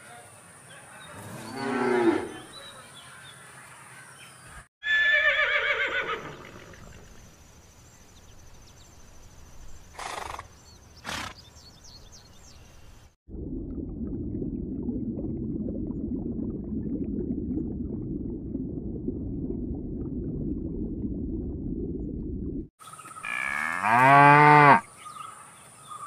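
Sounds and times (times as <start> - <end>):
horse whinnying: 4.8 - 6.7
water bubbling: 13.3 - 22.7
cow mooing: 23.2 - 24.9.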